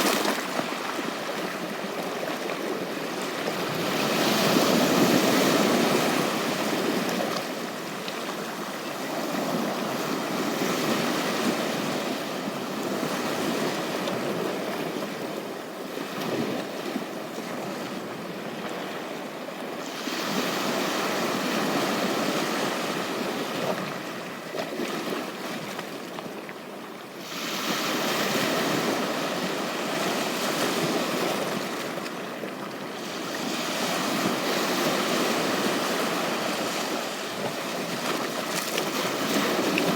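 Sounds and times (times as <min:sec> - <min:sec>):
sea waves washing onto beach: 0:27.2 - 0:39.9.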